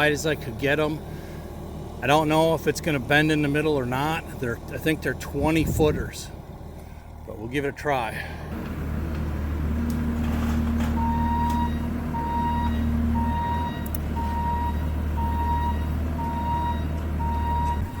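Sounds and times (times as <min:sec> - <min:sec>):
diesel engine humming: 0:00.0 - 0:18.0
reverse alarm beeping: 0:11.0 - 0:18.0.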